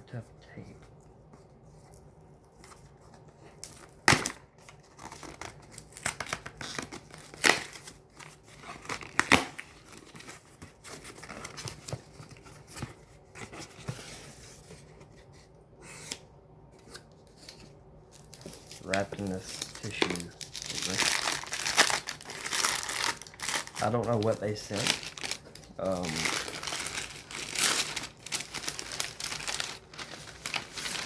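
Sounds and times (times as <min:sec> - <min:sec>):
cardboard and paper rustling: 0:01.4 - 0:31.0
packing tape ripping off cardboard: 0:05.0 - 0:08.0, 0:08.6 - 0:09.8.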